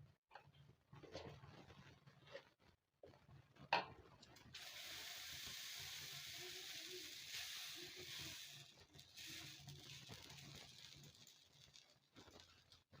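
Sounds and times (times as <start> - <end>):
batter sizzling on hot griddle: 4.5 - 13.0.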